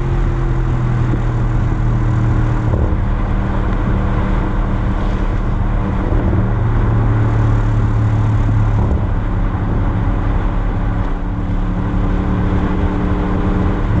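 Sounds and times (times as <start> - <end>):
car engine droning through exhaust: 0.0 - 14.0.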